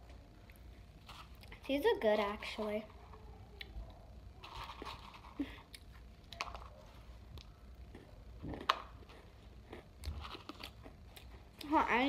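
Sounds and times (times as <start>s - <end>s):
person chewing crunchy crackers: 0.4s - 1.6s, 4.4s - 11.8s.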